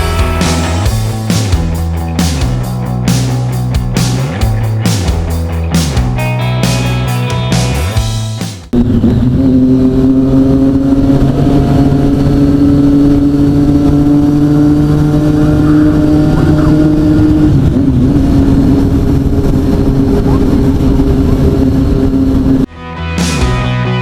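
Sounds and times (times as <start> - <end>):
motorcycle engine at high revs: 8.7 - 20.5.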